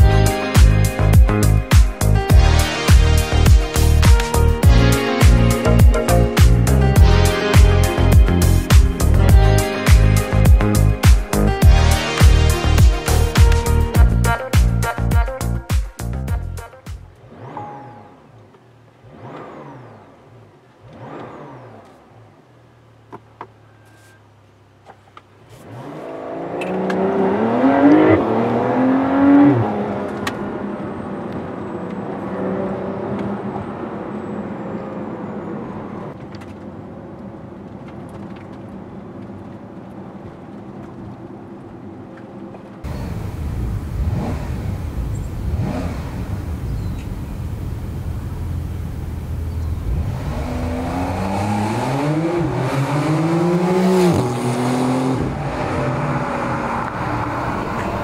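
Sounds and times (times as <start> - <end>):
car engine rumble outdoors: 0.0 - 58.0
car engine accelerating: 17.0 - 23.1, 25.5 - 36.6, 42.6 - 58.0.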